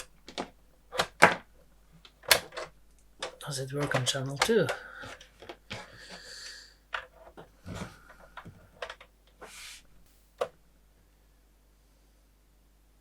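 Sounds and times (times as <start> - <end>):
clicks and knocks of buttons and connectors: 0.0 - 6.0, 6.9 - 9.4.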